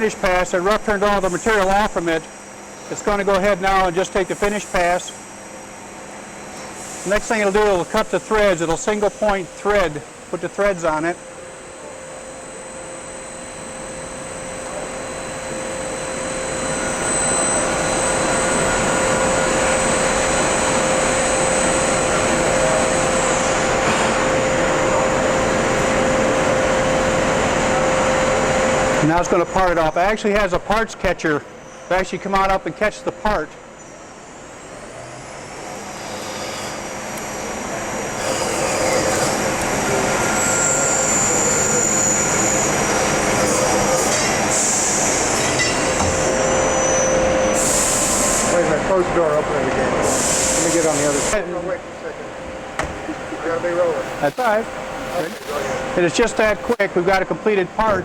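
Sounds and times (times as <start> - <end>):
machine hum: 0.0 - 30.4, 31.4 - 58.0
lathe machining noise: 0.0 - 58.0
high-pitched cutting squeal: 35.7 - 48.6, 53.4 - 56.9.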